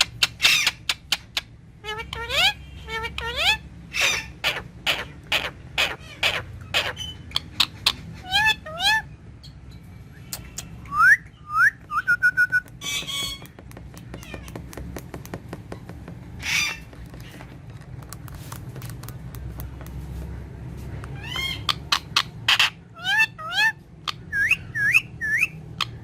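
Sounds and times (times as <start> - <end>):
parakeet squawk: 0.0 - 9.2, 10.4 - 14.7, 16.3 - 17.5, 21.0 - 26.0
parakeet chirps: 0.0 - 15.0, 16.3 - 17.4, 20.8 - 26.0
parakeet whistling: 10.2 - 13.5, 21.1 - 26.0.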